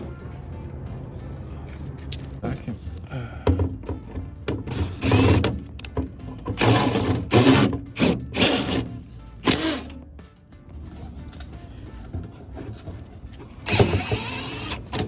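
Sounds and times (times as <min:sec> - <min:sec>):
background music: 0:00.0 - 0:15.0
power driver driving screws: 0:04.6 - 0:10.0, 0:13.4 - 0:15.0.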